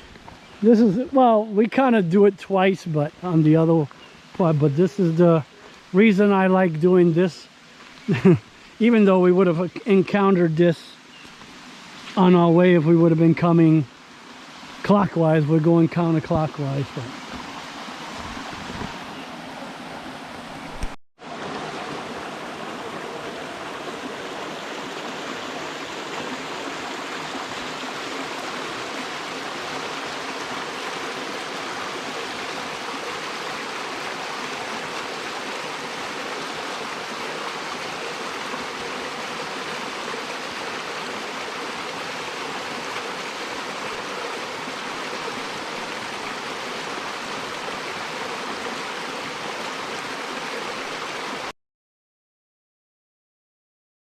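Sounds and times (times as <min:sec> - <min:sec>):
creek water rushing: 0:00.0 - 0:51.5.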